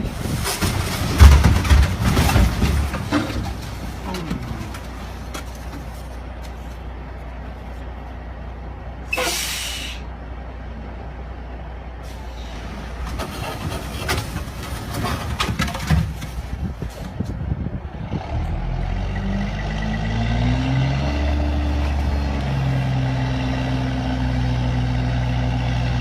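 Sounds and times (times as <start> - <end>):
knocks and rattles: 0.0 - 6.0, 13.0 - 17.3
heavy truck rumbling: 0.0 - 26.0
air brakes hissing: 9.1 - 10.1.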